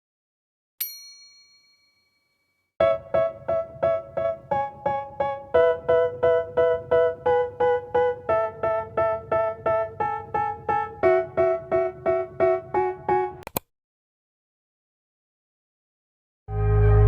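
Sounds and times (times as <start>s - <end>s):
piano repeated chords: 2.8s - 13.4s, 16.5s - 17.0s.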